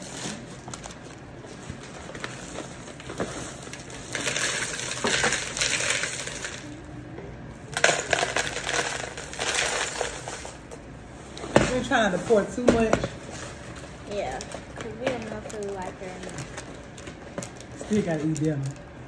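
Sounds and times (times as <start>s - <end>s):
dry cereal poured into bowl: 4.0s - 6.7s.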